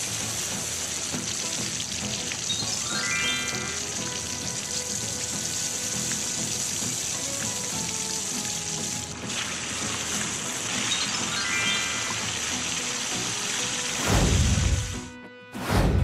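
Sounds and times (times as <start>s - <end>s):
running water: 0.0s - 15.1s
light background music: 0.0s - 16.0s
rising chime notes: 2.6s - 4.4s, 10.9s - 13.0s.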